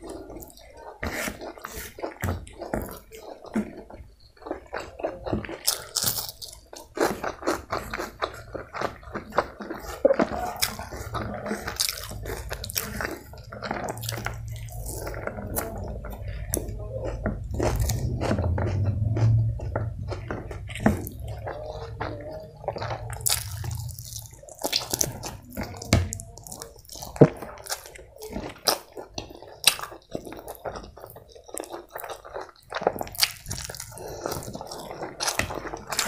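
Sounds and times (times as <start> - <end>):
person chewing food: 0.0 - 36.0
low hum: 10.7 - 27.5.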